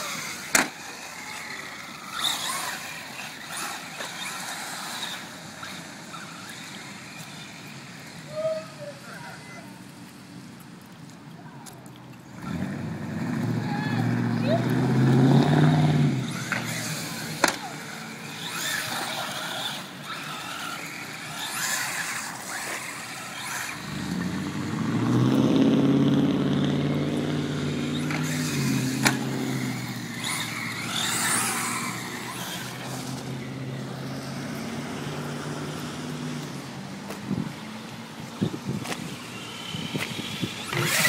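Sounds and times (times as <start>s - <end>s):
toy car motor hum: 0.0s - 10.5s, 15.6s - 24.8s, 27.2s - 36.6s, 38.4s - 41.0s.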